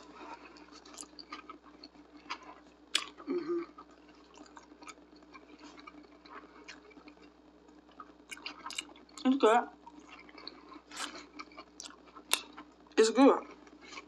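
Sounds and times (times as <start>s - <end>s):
murmur with mouth full: 0.0s - 7.3s
close chewing with mouth clicks: 0.0s - 12.8s, 13.4s - 14.0s.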